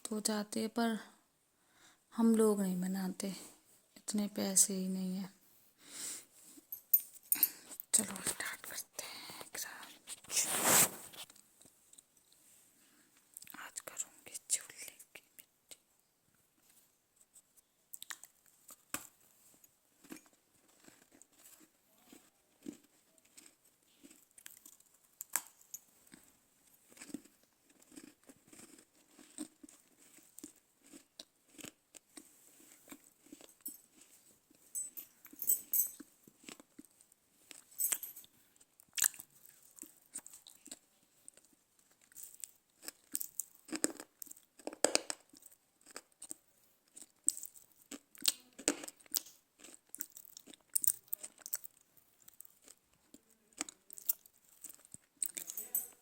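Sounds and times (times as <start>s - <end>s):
clay being bitten and chewed: 17.2s - 34.6s, 36.0s - 37.7s, 38.6s - 55.6s.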